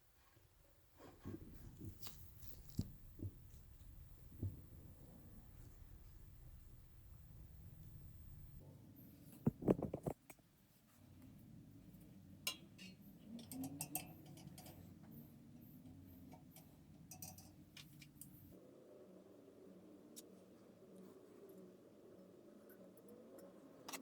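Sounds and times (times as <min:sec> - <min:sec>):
fan parts clicking and tapping: 0:09.2 - 0:10.4, 0:12.2 - 0:18.6.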